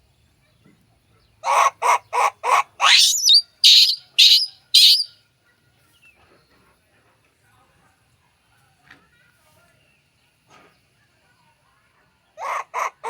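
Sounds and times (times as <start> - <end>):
animal calling loudly: 1.4 - 5.1.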